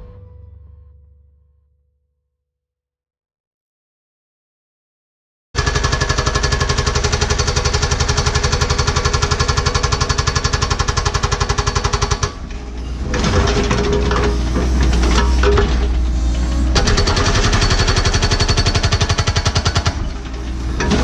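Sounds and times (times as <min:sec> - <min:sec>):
hydraulic hammer pounding rock: 0:05.6 - 0:21.0
excavator diesel engine running: 0:06.6 - 0:21.0.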